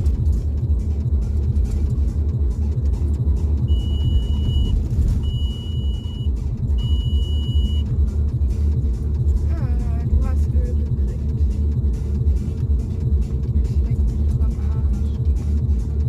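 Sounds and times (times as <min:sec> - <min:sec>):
car engine rumbling: 0:00.0 - 0:16.0
car warning chime beeping: 0:03.6 - 0:07.9.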